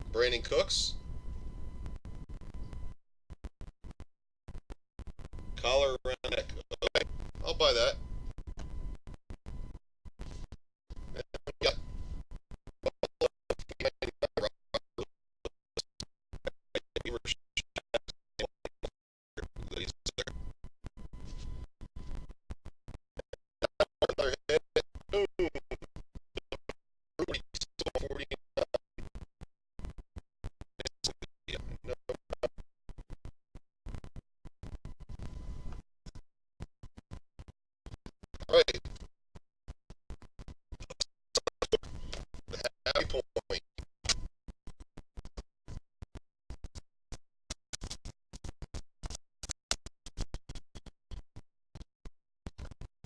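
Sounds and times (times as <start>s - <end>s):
stuttering voice scraps: 40.8s - 43.6s.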